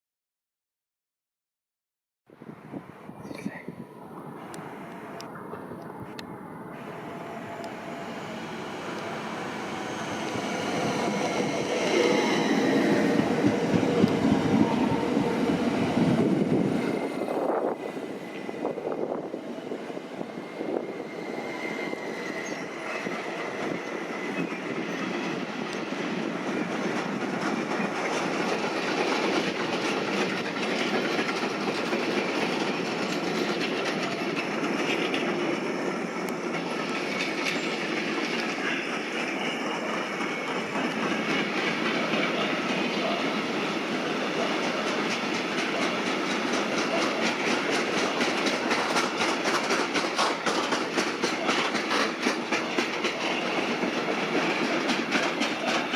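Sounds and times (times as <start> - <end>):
train wheels clattering: 20.6 - 55.9.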